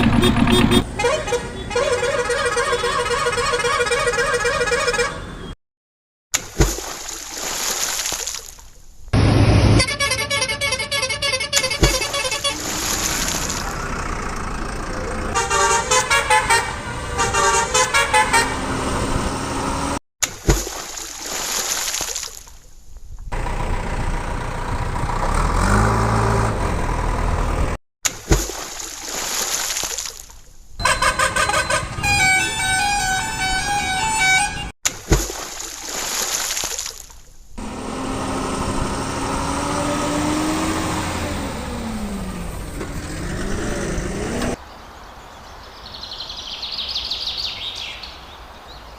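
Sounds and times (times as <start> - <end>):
engine rumble: 0.0 - 1.4, 11.6 - 20.0, 23.1 - 27.8, 37.6 - 44.6
vehicle horn: 0.0 - 5.6, 9.8 - 12.6, 15.2 - 19.0, 30.8 - 34.7
tune-like horn pattern: 9.8 - 12.5, 15.3 - 18.9, 30.8 - 34.7.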